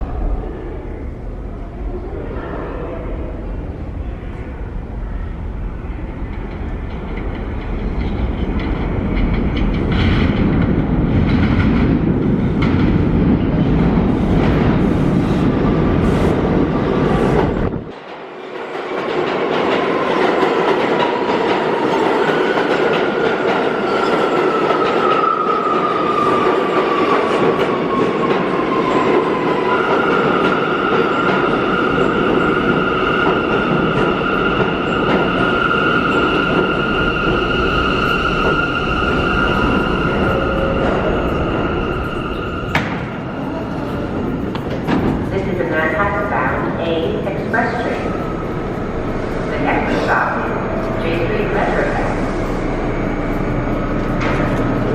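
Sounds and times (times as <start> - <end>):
subway train clattering on rails: 0.0 - 54.9.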